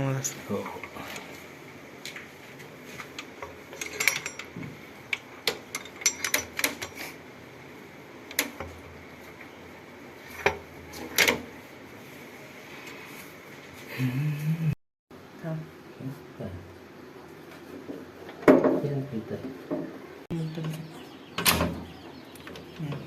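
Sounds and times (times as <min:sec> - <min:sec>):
metal tools clinking and tapping: 0:03.2 - 0:04.6, 0:05.5 - 0:07.2.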